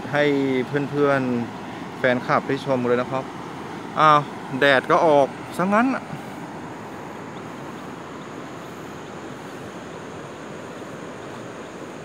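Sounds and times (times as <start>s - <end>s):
even outdoor hiss: 0.0s - 12.0s
high-pitched insect drone: 7.0s - 12.0s.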